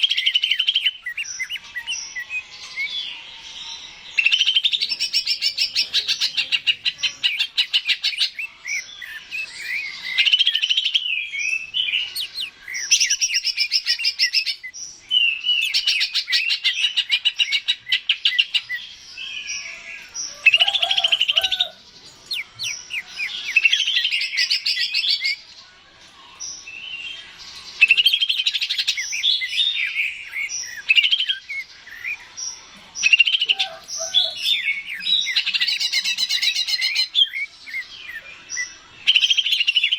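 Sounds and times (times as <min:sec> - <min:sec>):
bird chattering trills: 0:00.0 - 0:25.5, 0:27.6 - 0:39.9
bird whistled phrases: 0:33.0 - 0:39.9.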